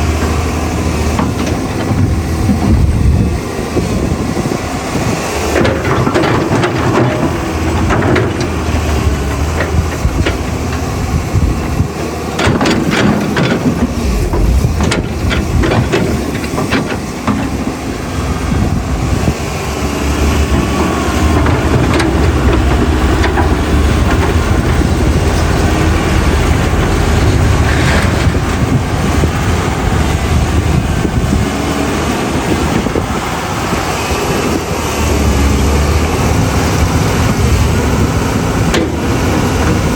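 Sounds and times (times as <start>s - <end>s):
excavator diesel engine running: 0.0s - 39.9s
metal knocks and clanks: 5.6s - 11.0s, 11.7s - 17.9s, 20.4s - 28.8s, 38.7s - 39.8s.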